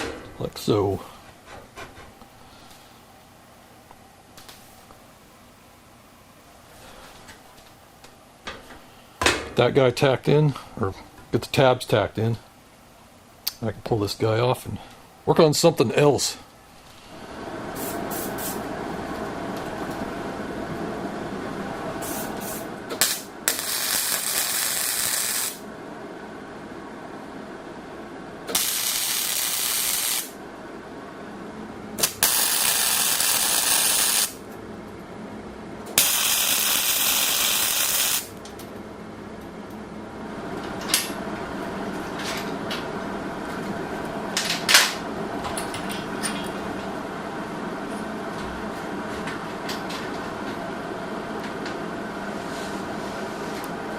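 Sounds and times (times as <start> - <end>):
steady hum: 0.0 - 53.9
welding hiss: 22.0 - 25.6, 28.5 - 30.4, 32.0 - 34.4, 36.0 - 38.3.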